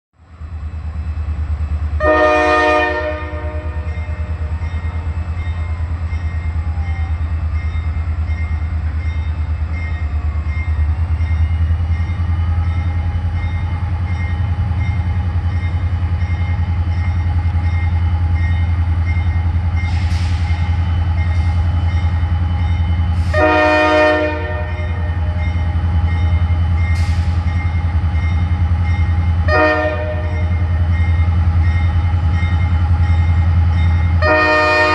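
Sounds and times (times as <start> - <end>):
diesel locomotives rumbling: 0.2 - 34.9
locomotive air horn blasts: 2.0 - 3.9, 23.2 - 25.2, 29.5 - 30.6, 34.2 - 34.9
crossing bell ringing: 2.7 - 34.9
air hissing: 19.9 - 20.8.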